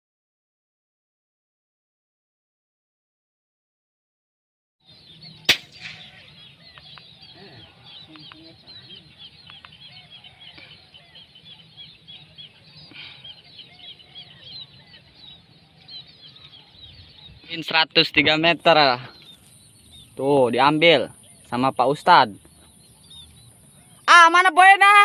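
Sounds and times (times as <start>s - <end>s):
flock of birds chirping: 4.8s - 25.0s
air rifle shot: 5.4s - 6.4s.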